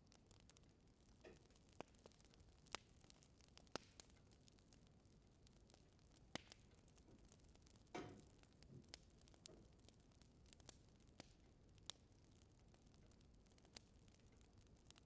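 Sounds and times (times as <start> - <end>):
fire crackling: 0.0 - 15.0
low fire hiss: 0.0 - 15.0.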